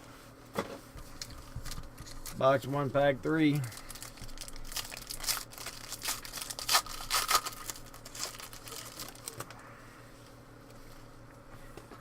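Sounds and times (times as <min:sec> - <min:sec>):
foil wrapper tearing and crinkling: 0:03.5 - 0:09.5.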